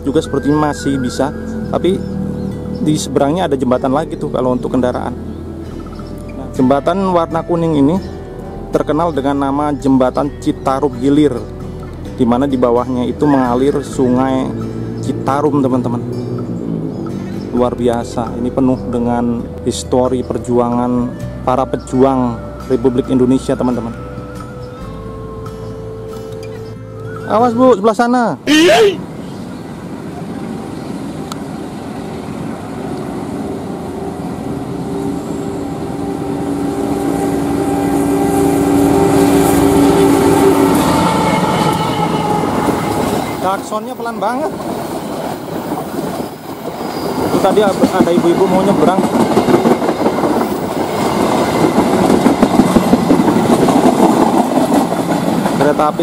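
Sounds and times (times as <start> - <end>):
train running over bridge: 0.0 - 56.0
soft train horn: 30.2 - 43.7.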